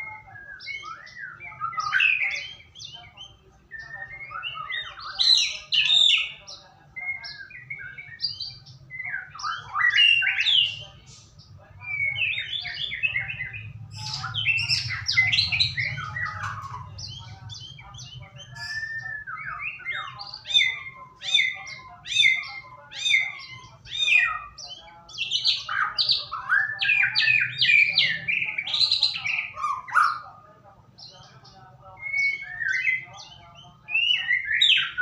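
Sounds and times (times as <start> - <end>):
bird singing whistled song: 0.0 - 6.4, 7.0 - 10.8, 11.8 - 30.2, 32.0 - 35.0
steady low hum: 10.6 - 29.5.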